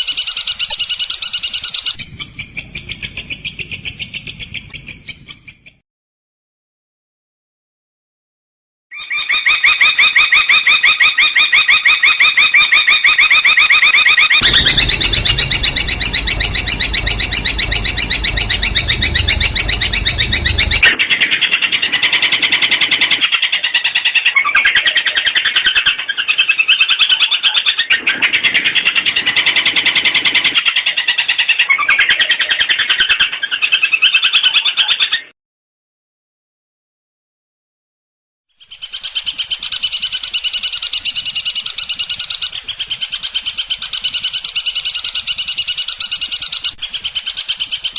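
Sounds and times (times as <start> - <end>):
bird chattering song: 0.0 - 5.8
low rumble: 14.4 - 21.0.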